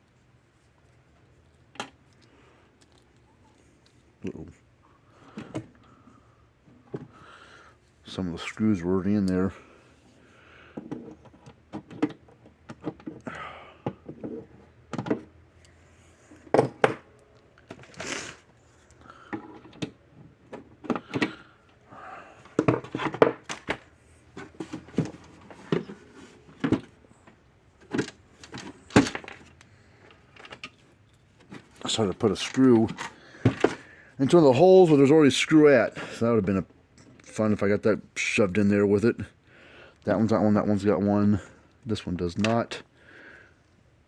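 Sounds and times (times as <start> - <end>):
plastic case being handled: 22.5 - 29.6.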